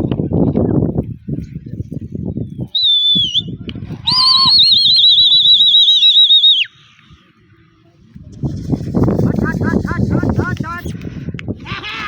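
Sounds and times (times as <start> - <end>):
trilling whistle blasts: 2.6 - 6.8.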